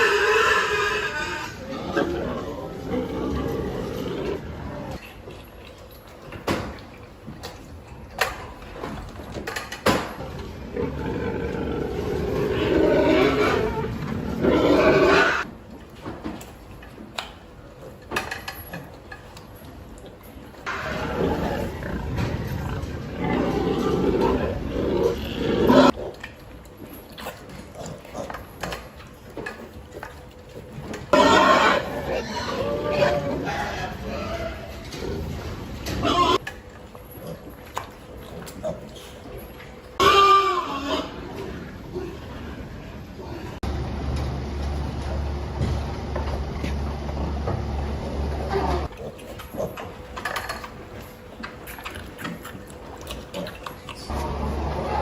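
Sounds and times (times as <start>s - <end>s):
pig calling loudly: 0.0s - 5.0s, 10.7s - 15.5s, 20.7s - 26.0s, 31.1s - 36.4s, 40.0s - 42.2s, 53.3s - 55.0s.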